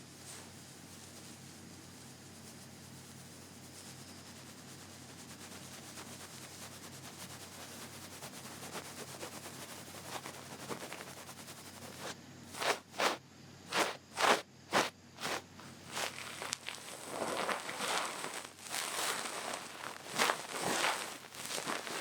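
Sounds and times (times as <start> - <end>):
ear pick rubbing microphone: 5.6 - 22.0.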